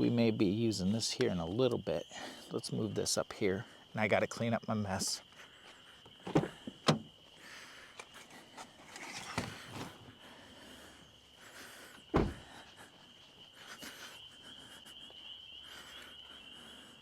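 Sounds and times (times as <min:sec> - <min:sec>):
high-pitched insect trill: 0:00.0 - 0:09.3, 0:10.1 - 0:17.0
camp gear knocking: 0:06.2 - 0:07.1, 0:12.1 - 0:12.5
heavy thump: 0:12.1 - 0:12.5.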